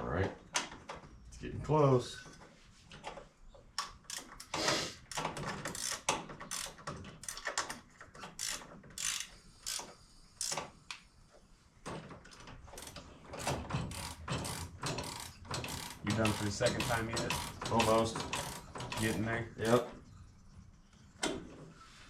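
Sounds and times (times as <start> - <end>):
ratchet wrench clicking: 5.1 - 7.5, 8.4 - 10.6, 13.9 - 19.2.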